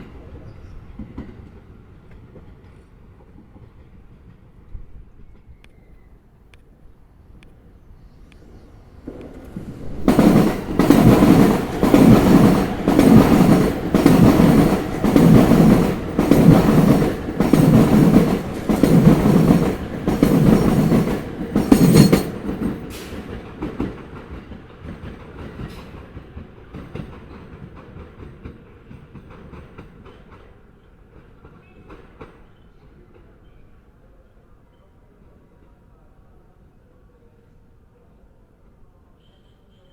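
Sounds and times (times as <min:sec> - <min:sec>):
train rolling rumble: 0:08.2 - 0:32.3
train wheels clattering over joints: 0:09.0 - 0:30.5.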